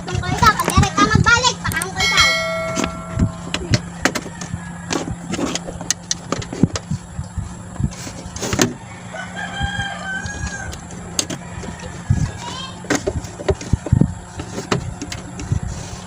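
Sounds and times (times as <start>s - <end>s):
steady low hum: 1.3s - 4.1s
rooster crowing: 8.9s - 10.8s.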